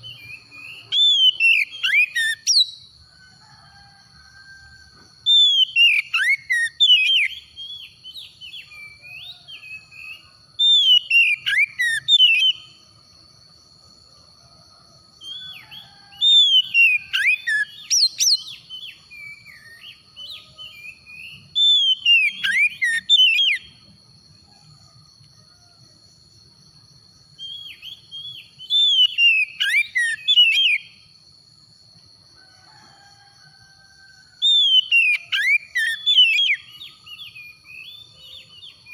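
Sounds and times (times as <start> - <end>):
bird singing whistled phrases: 0.0 - 2.8, 5.3 - 12.7, 15.3 - 23.7, 27.4 - 30.9, 34.4 - 38.9.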